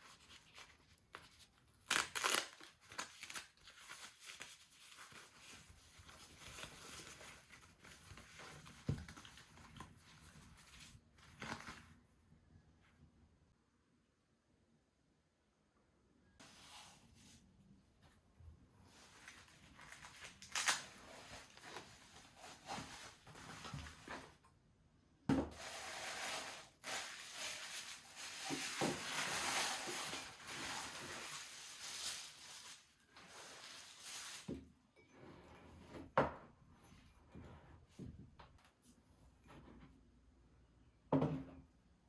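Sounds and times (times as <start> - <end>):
packaging crinkling: 0.2 - 5.5, 19.2 - 23.8, 25.6 - 34.5.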